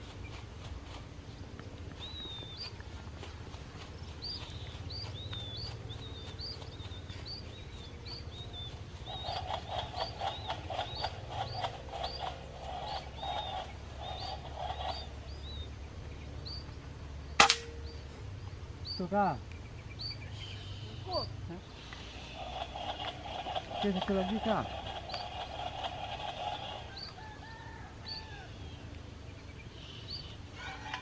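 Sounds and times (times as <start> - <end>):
birds chirping: 0.0 - 31.0
rhythmic bird calling: 1.9 - 16.8, 19.9 - 28.9
air rifle shot: 17.4 - 17.8.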